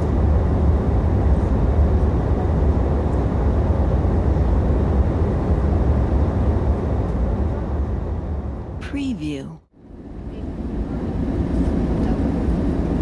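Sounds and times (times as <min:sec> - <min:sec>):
airliner cabin engine rumble: 0:00.0 - 0:08.8, 0:09.8 - 0:13.0.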